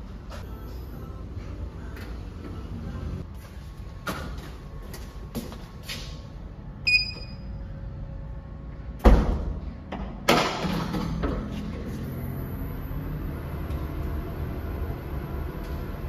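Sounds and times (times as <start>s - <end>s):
short electronic beep: 6.9s - 7.6s.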